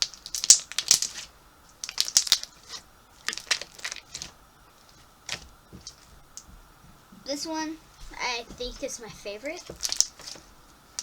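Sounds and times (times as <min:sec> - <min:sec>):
slime squeezed in hands: 0:00.0 - 0:04.4, 0:09.8 - 0:10.4.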